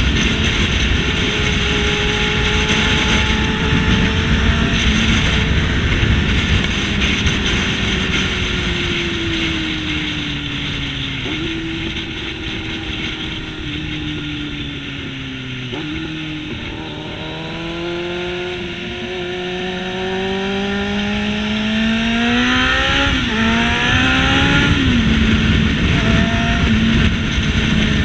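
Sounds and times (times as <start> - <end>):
motorcycle engine: 0.0 - 28.0
wind rushing over microphone: 0.0 - 28.0.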